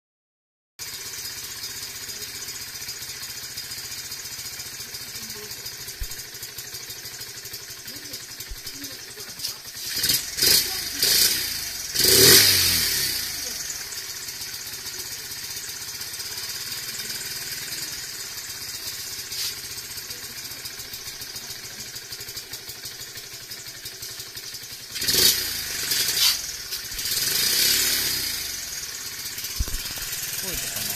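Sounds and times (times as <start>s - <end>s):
motorcycle engine idling: 0.8s - 30.9s
engine revving: 7.8s - 30.9s.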